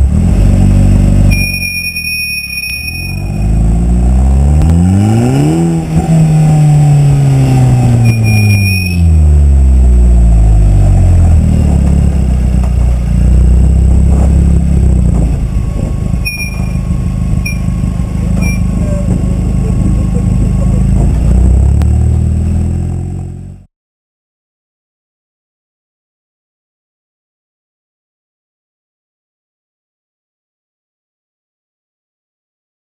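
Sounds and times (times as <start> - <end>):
car engine revving: 0.0 - 23.7.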